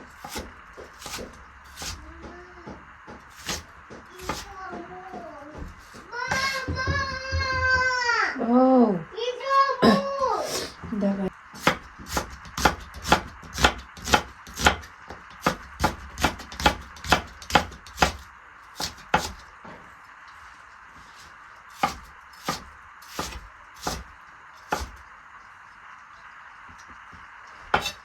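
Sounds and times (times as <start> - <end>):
knife chopping on cutting board: 0.2 - 7.5, 11.6 - 19.5, 21.8 - 25.0, 27.7 - 28.0.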